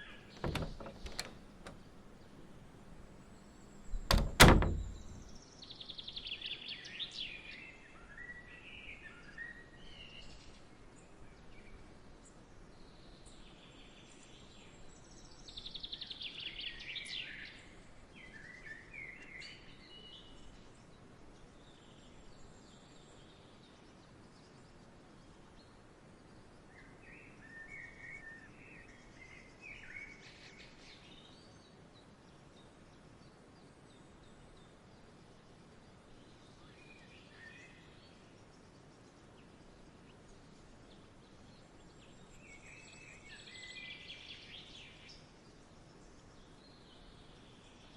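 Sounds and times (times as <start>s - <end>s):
faint outdoor hiss: 0.3s - 5.4s.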